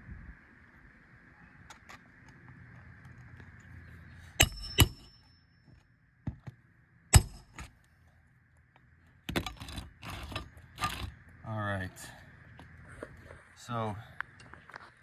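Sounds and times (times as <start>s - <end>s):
hand tools knocking on nails: 4.4s - 5.2s.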